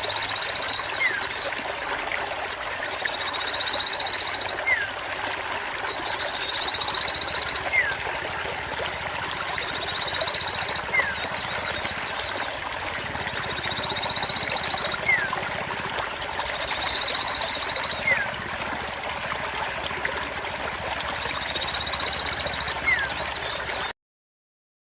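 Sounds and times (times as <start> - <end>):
bird song trill: 0.0 - 1.4, 3.1 - 4.9, 5.8 - 8.0, 9.5 - 15.4, 16.2 - 18.4, 21.1 - 23.9
trickling water: 0.0 - 23.9.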